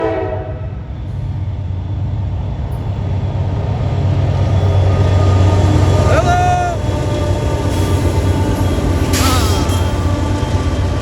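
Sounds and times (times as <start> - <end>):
diesel locomotive engines rumbling: 0.0 - 11.0.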